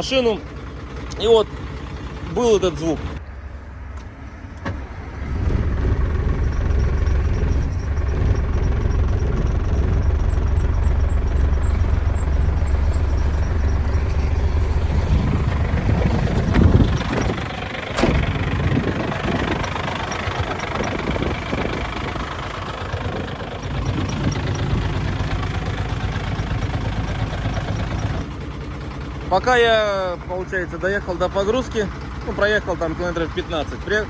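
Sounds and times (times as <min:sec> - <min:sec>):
engine squeak and ticking: 0:00.0 - 0:34.0
truck diesel engine idling: 0:00.0 - 0:34.0.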